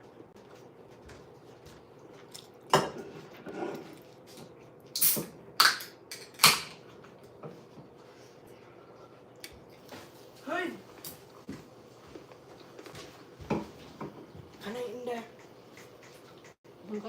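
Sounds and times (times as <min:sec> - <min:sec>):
dishes clattering: 0:02.7 - 0:03.8.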